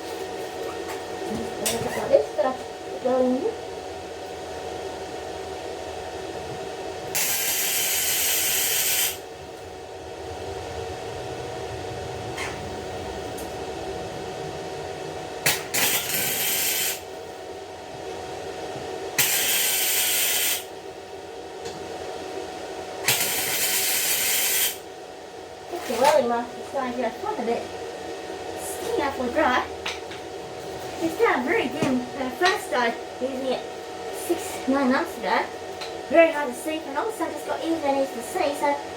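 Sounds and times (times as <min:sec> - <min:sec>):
steady hum: 0:00.0 - 0:38.9
arc welder crackling hiss: 0:07.1 - 0:09.4, 0:15.4 - 0:17.4, 0:19.2 - 0:20.8, 0:23.0 - 0:24.9.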